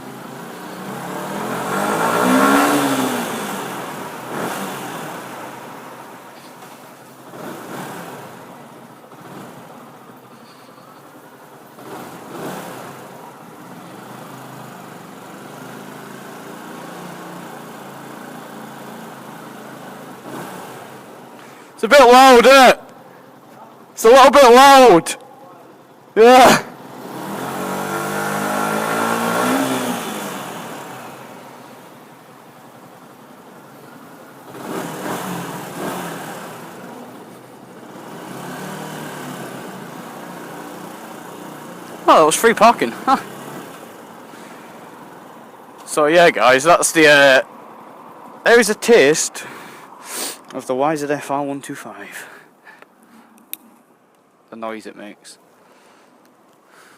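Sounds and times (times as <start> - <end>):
motorcycle engine revving: 0.0 - 10.6, 11.4 - 21.3, 26.2 - 45.4.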